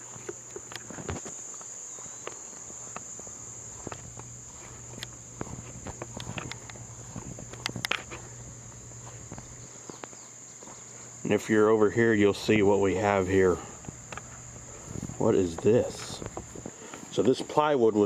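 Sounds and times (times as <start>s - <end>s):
light footsteps: 0.0s - 17.6s
insects droning: 0.0s - 18.0s
small knocks: 3.7s - 10.2s.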